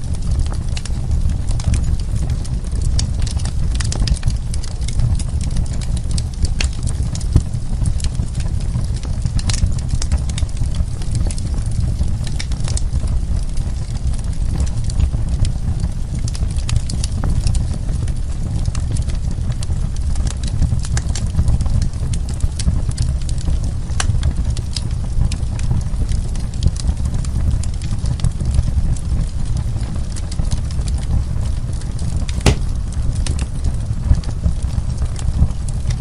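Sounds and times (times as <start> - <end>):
burning wood crackling and popping: 0.0 - 36.0
low rumble of flames: 0.0 - 36.0.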